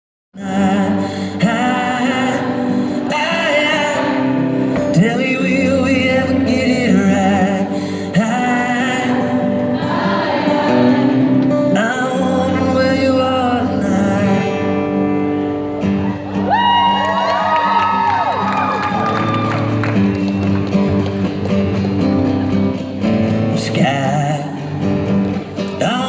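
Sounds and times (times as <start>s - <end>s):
several voices singing: 0.4s - 15.0s
musical accompaniment: 14.9s - 26.0s.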